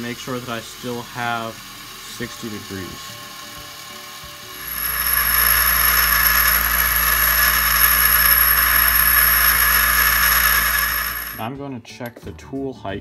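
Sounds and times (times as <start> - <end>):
bench grinder grinding steel: 4.6 - 11.4.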